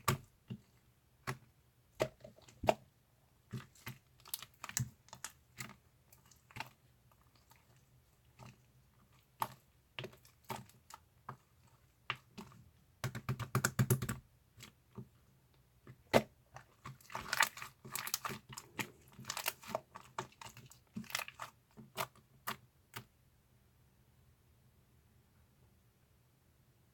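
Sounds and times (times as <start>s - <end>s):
slime squished by hand: 15.9s - 23.1s.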